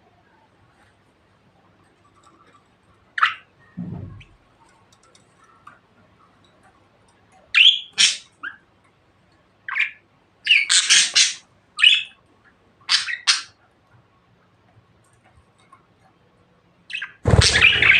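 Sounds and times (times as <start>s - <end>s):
budgerigar chirping and squawking: 7.6s - 8.6s, 9.7s - 12.2s, 12.9s - 13.6s, 16.9s - 17.9s.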